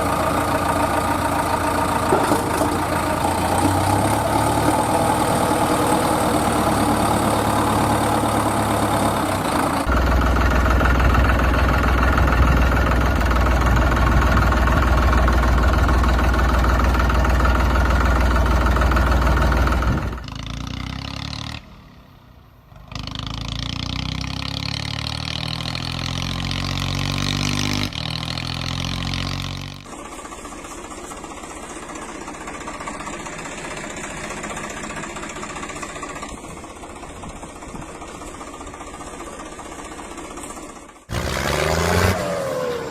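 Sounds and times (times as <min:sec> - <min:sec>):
diesel machinery engines idling: 0:00.0 - 0:20.6, 0:29.6 - 0:42.9.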